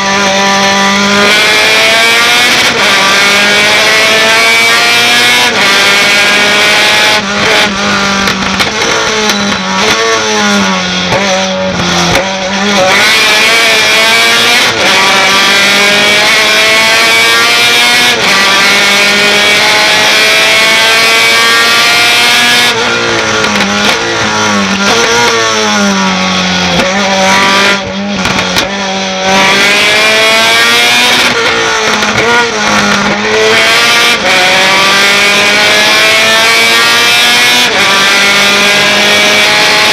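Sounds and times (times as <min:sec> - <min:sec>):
truck engine at full throttle: 0:00.0 - 0:39.9.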